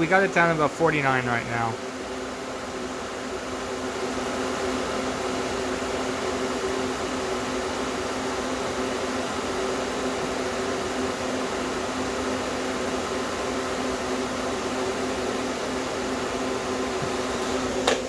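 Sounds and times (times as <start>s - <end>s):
compressor humming: 0.0s - 1.8s.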